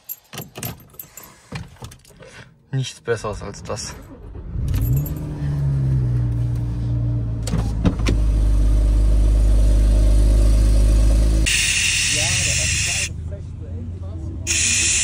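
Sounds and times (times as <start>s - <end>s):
car engine starting and idling: 3.1s - 15.0s.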